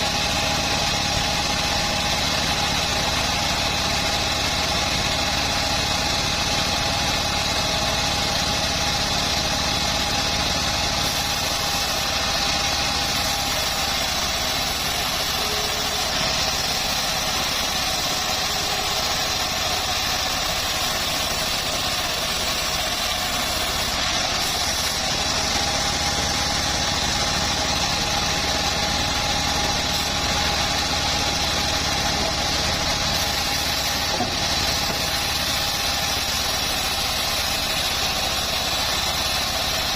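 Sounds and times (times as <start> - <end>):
bandsaw running: 0.0 - 39.9.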